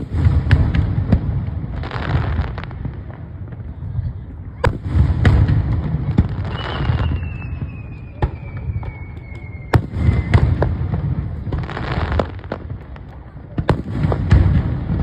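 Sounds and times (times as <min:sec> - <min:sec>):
fireworks bangs: 0:00.0 - 0:15.0
high falling whistle: 0:06.5 - 0:10.7.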